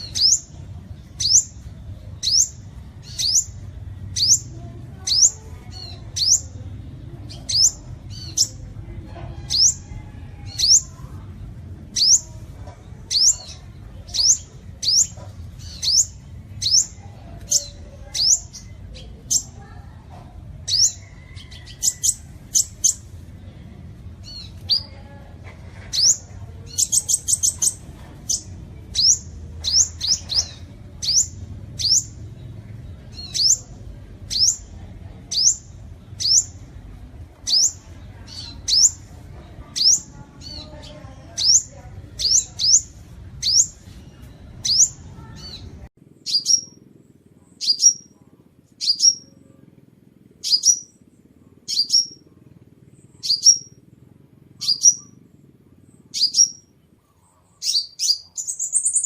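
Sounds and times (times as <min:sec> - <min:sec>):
bird chipping calls: 0:00.0 - 0:06.6, 0:07.2 - 0:11.1, 0:11.9 - 0:19.8, 0:20.6 - 0:23.1, 0:25.9 - 0:32.4, 0:37.4 - 0:43.8, 0:44.6 - 0:48.2, 0:48.8 - 0:49.4, 0:50.3 - 0:53.8, 0:54.5 - 0:55.3, 0:55.9 - 0:59.0
low background rumble: 0:00.0 - 0:59.0.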